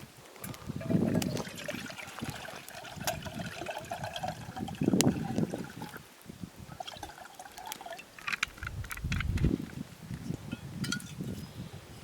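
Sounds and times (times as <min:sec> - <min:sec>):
liquid trickling and pouring: 0:00.7 - 0:08.3.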